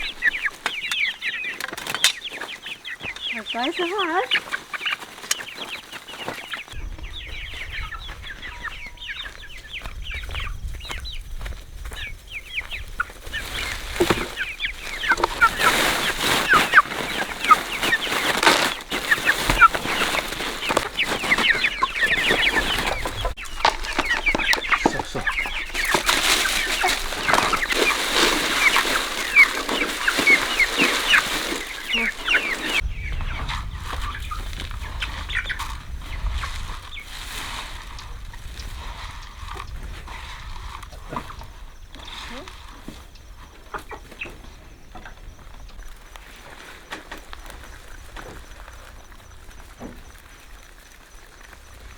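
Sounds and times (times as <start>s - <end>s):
chickens clucking and cheeping: 0.0s - 51.9s.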